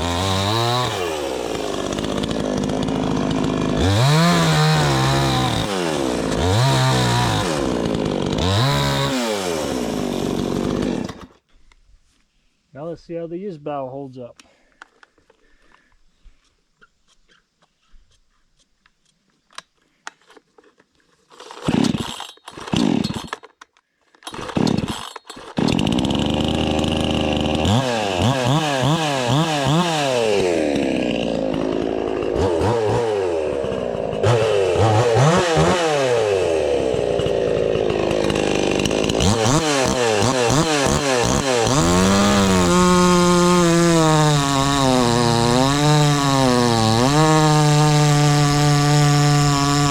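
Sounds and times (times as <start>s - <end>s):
chainsaw starting and revving: 0.0s - 11.4s, 21.3s - 23.5s, 24.2s - 49.9s.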